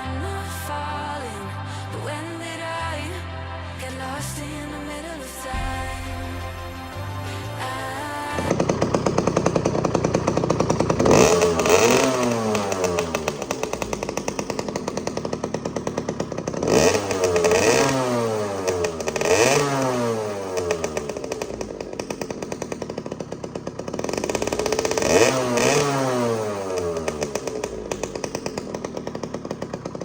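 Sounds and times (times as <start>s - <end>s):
motorcycle engine revving: 5.5s - 30.0s.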